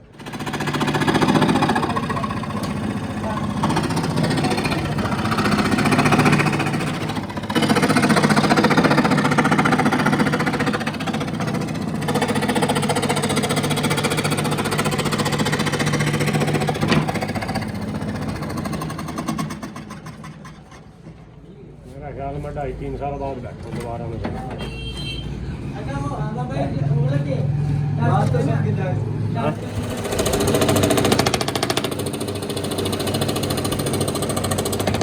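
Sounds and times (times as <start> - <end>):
electric power tool buzzing: 0.1 - 19.1.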